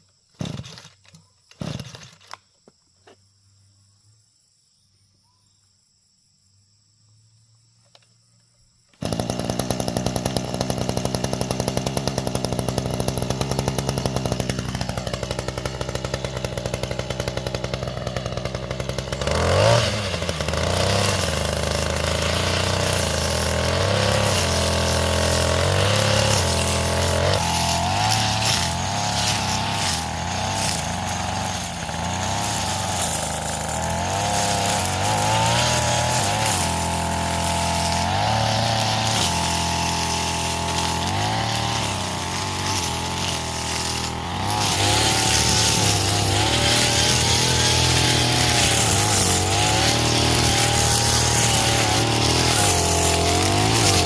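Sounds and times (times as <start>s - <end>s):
small petrol generator engine running: 9.0s - 54.0s.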